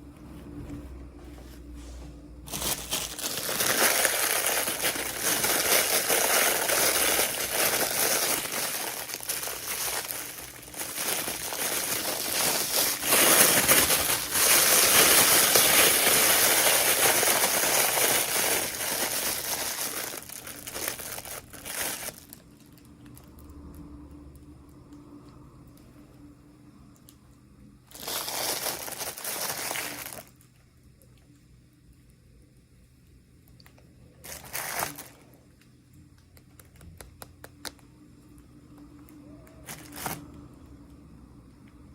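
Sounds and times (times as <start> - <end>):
packaging crinkling: 0.5 - 23.2, 27.9 - 30.4, 33.7 - 35.4, 39.3 - 40.4.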